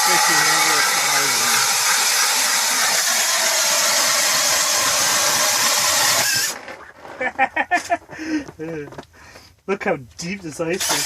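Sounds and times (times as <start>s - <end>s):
power ice auger whirring: 0.0s - 7.4s, 10.7s - 11.0s.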